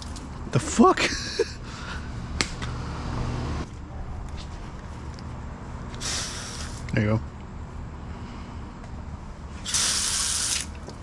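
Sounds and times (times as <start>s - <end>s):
hose spray hissing: 5.9s - 6.9s, 9.6s - 10.8s.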